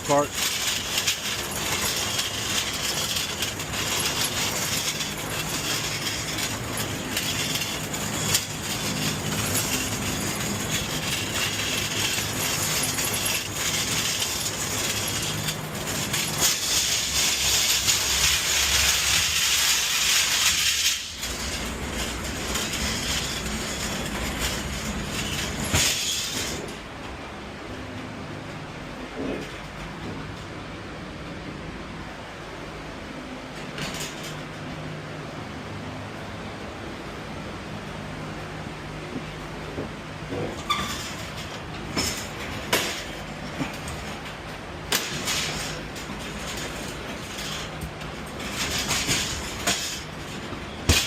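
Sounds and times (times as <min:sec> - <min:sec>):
cart rattling over hard ground: 0:00.0 - 0:26.8, 0:33.5 - 0:34.7, 0:39.2 - 0:51.0.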